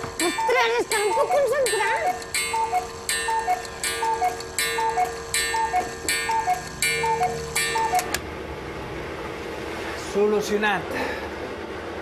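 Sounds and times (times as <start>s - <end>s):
cuckoo clock calling: 0.0s - 8.2s.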